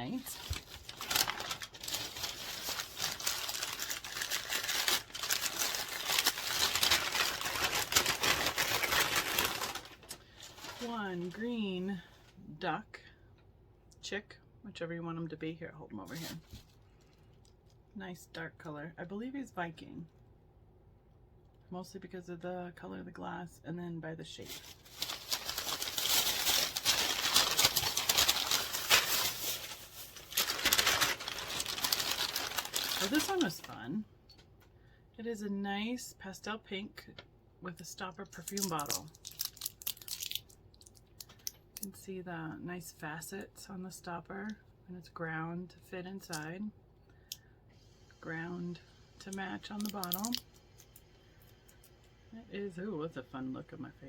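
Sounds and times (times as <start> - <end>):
wrapping being crinkled: 0.0 - 12.1, 16.1 - 17.8, 24.4 - 34.0, 38.3 - 41.9, 49.4 - 52.0.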